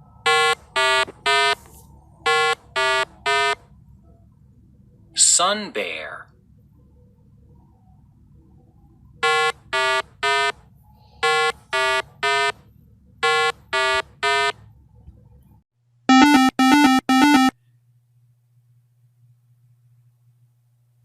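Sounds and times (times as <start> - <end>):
electronic beeps: 16.1 - 17.5.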